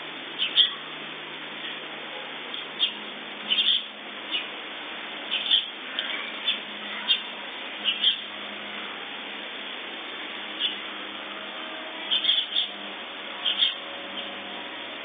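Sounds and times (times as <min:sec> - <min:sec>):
microphone hiss: 0:00.0 - 0:15.0
birds chirping: 0:00.4 - 0:00.8, 0:02.5 - 0:04.6, 0:05.2 - 0:08.6, 0:10.5 - 0:15.0.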